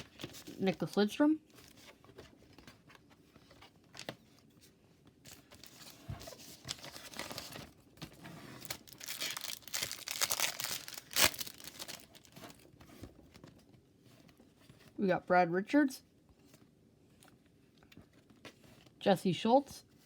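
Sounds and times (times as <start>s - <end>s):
sharp crackle of wrapper: 8.6s - 12.6s
wrapper tearing and crinkling: 8.6s - 12.6s.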